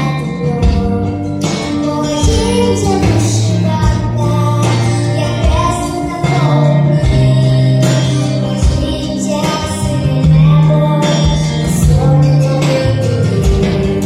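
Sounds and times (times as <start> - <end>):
girl singing: 0.0 - 14.0
instrumental backing music: 0.0 - 14.0.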